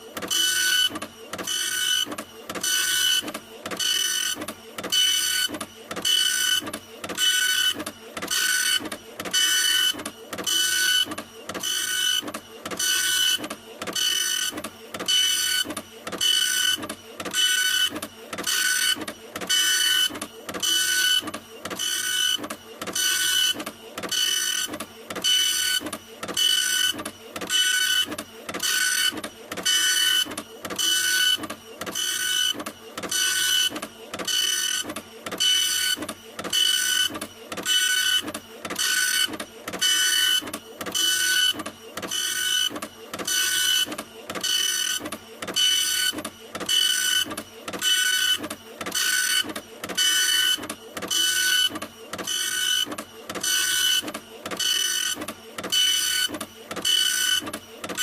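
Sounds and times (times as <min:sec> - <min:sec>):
printer whirring and whining: 0:00.0 - 0:58.0.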